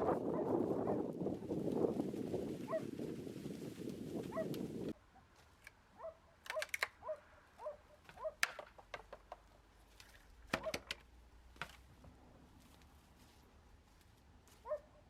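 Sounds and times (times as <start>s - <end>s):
sharp clicks and taps: 6.4s - 7.0s, 10.5s - 11.8s.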